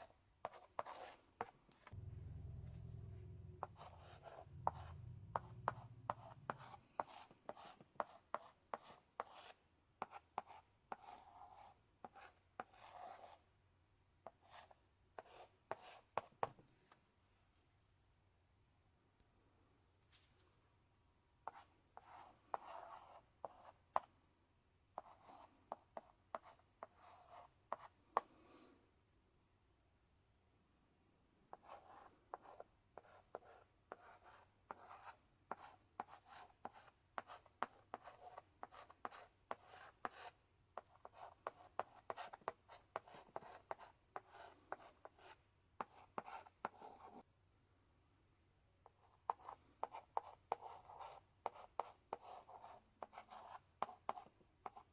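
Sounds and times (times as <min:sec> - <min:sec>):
chalk writing on blackboard: 0:00.0 - 0:01.9, 0:03.7 - 0:13.4, 0:14.2 - 0:16.5, 0:21.5 - 0:24.1, 0:25.0 - 0:27.9, 0:31.5 - 0:47.2, 0:48.9 - 0:54.9
chalk taps: 0:00.0 - 0:02.0, 0:03.6 - 0:13.4, 0:31.5 - 0:47.2, 0:48.8 - 0:54.9.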